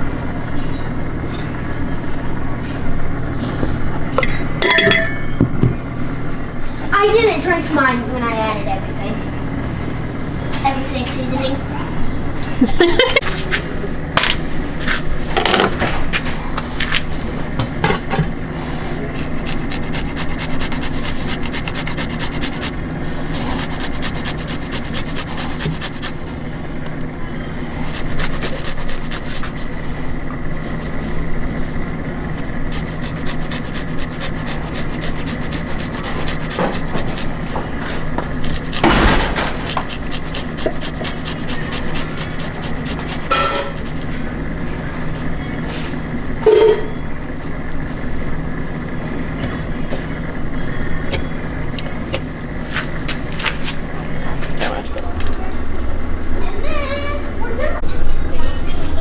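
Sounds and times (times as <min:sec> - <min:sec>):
steady low hum: 0:00.0 - 0:59.0
fast rhythmic scraping: 0:18.9 - 0:26.2, 0:27.6 - 0:31.2, 0:32.2 - 0:37.5, 0:38.3 - 0:44.0.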